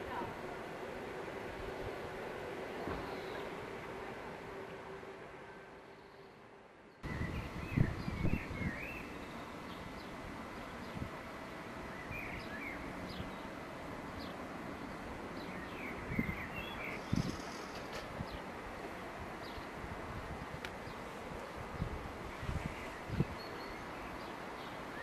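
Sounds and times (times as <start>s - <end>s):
outdoor background noise: 0.0s - 25.0s
small birds chirping: 6.9s - 11.2s, 11.9s - 18.5s.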